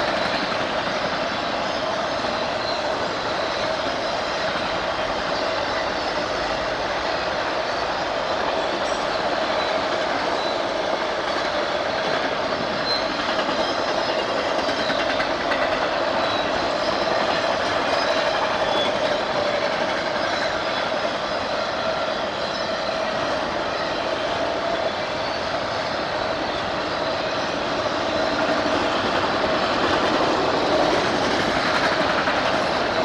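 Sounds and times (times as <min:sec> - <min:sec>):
train rolling on rails: 0:00.0 - 0:33.0
faint wheel squeals: 0:16.0 - 0:28.7.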